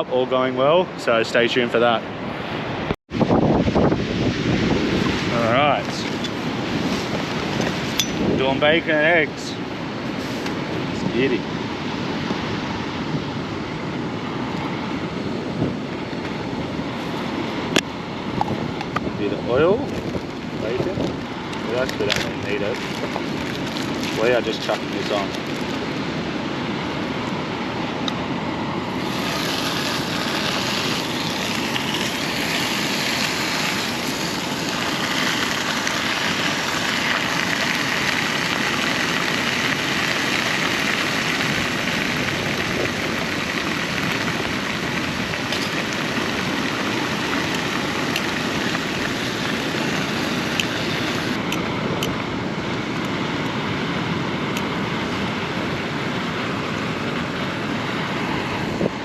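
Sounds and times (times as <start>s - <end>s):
surf rushing: 0.0s - 59.0s
wind: 0.0s - 59.0s
bacon sizzling in a pan: 29.0s - 51.4s.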